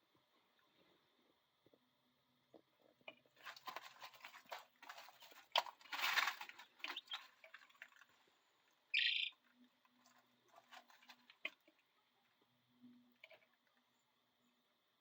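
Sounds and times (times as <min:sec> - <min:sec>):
chicks rustling in bedding: 0:03.2 - 0:12.0.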